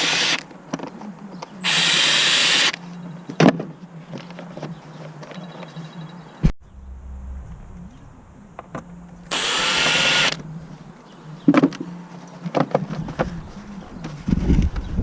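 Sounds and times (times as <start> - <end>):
cordless power tool running: 1.6 - 2.8, 9.3 - 10.4.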